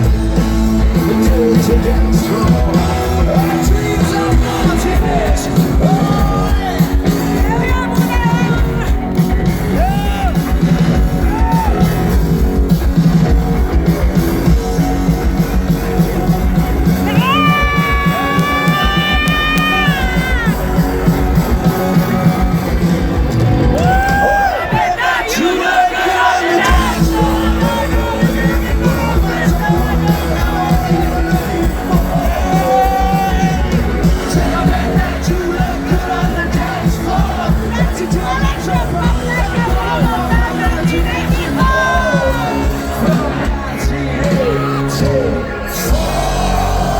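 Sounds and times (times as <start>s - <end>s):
guitar: 0.0s - 46.9s
live rock band playing: 0.0s - 46.9s
person singing: 0.8s - 8.9s, 25.4s - 46.9s.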